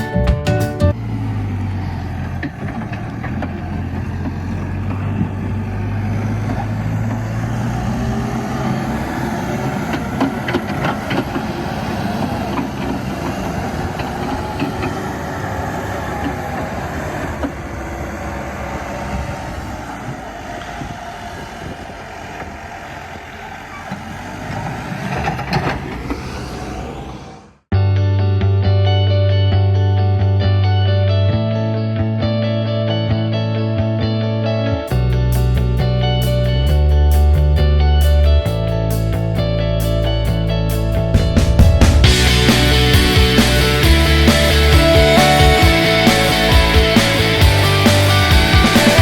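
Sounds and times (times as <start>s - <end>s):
excavator diesel engine running: 0.0s - 27.5s, 34.9s - 49.0s
wavering whine: 2.2s - 24.2s.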